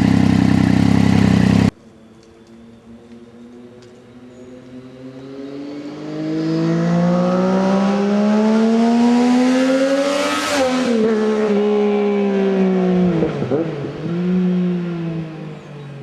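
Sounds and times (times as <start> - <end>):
motorcycle accelerating past: 4.5 - 16.0.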